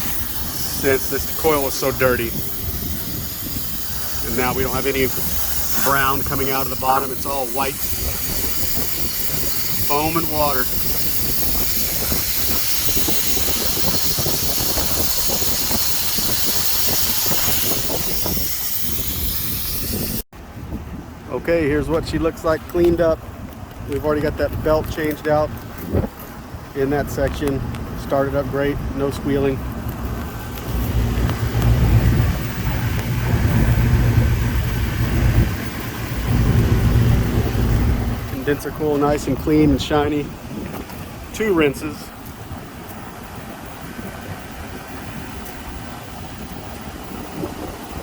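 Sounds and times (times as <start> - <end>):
water spraying and splashing: 0.0 - 20.3, 29.6 - 48.0
hvac fan and motor rumble: 0.0 - 48.0.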